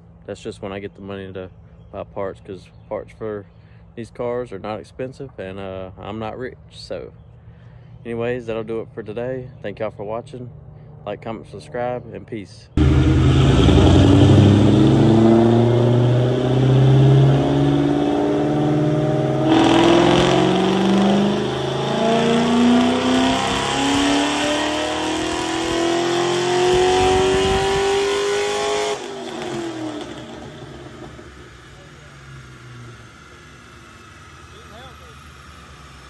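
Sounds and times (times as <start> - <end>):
car engine revving on dynamometer: 12.8 - 36.0.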